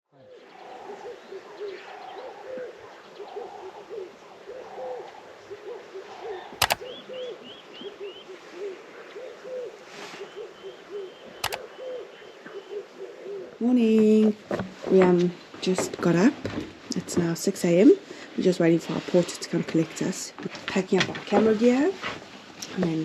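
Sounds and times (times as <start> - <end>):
doves cooing: 0.2 - 14.3
sharp double click: 6.6 - 6.9.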